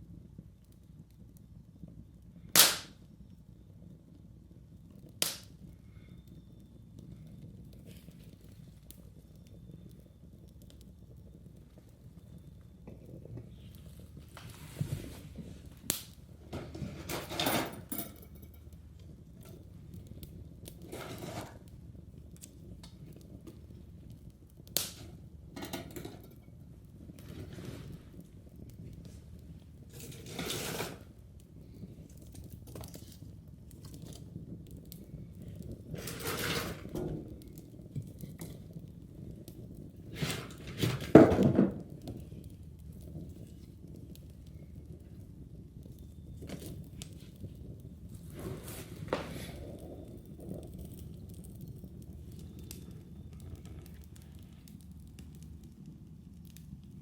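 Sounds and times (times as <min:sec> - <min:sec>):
sharp wood cracks: 0:02.5 - 0:03.0, 0:05.2 - 0:05.5, 0:24.8 - 0:25.0
firewood crunching and scraping: 0:11.6 - 0:23.9, 0:25.9 - 0:55.8
hard objects scraping and clattering: 0:16.5 - 0:18.8, 0:20.7 - 0:21.8, 0:27.1 - 0:28.3, 0:29.8 - 0:31.2, 0:35.6 - 0:37.4, 0:40.0 - 0:42.2, 0:48.1 - 0:51.8.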